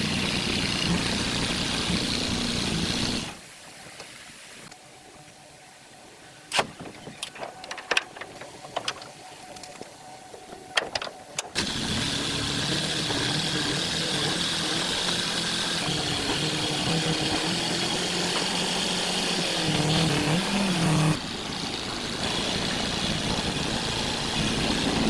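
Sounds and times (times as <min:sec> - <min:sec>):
sharp clicks and knocks: 0:06.5 - 0:09.9, 0:10.7 - 0:12.2
truck engine running: 0:11.6 - 0:25.0.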